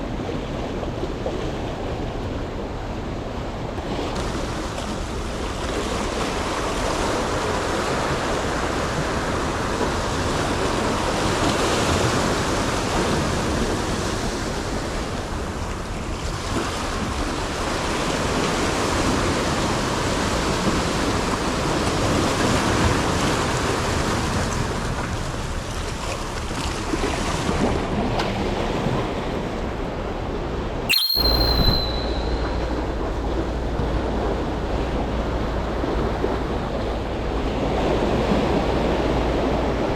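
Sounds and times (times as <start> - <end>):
short high tone: 30.9 - 33.2.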